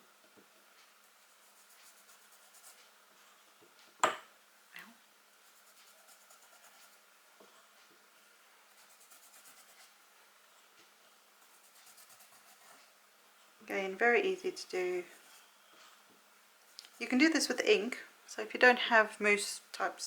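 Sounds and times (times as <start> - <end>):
rubbing strokes over cardstock: 5.4 - 7.0, 8.7 - 10.0, 11.4 - 12.9.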